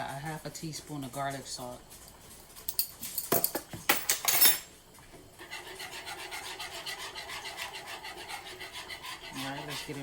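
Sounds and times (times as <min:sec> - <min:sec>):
spoon scraping through sauce in pot: 0:05.4 - 0:10.0.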